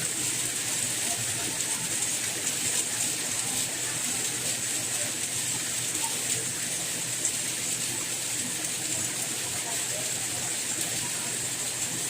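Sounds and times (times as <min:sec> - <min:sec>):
soft rain hiss: 0:00.0 - 0:12.0
faint raindrop ticks: 0:00.4 - 0:12.0.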